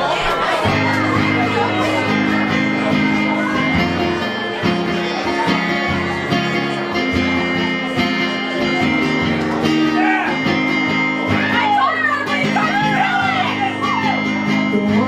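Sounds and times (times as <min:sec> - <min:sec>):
band playing guitar-led instrumental: 0:00.0 - 0:15.0.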